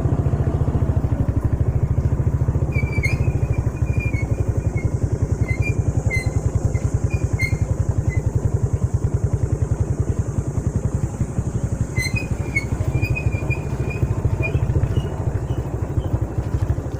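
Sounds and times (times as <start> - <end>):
small motorcycle engine puttering: 0.0 - 16.9.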